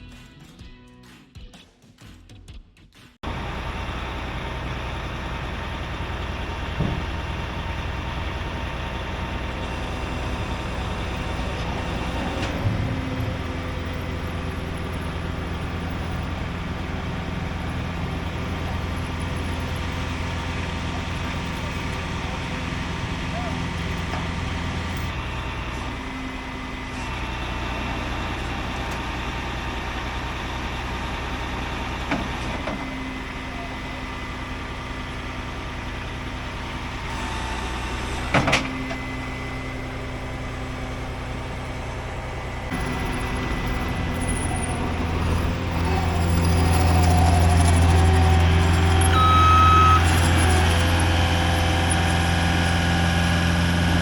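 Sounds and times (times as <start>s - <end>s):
truck engine running: 3.2s - 54.0s
short high tone: 49.0s - 50.4s.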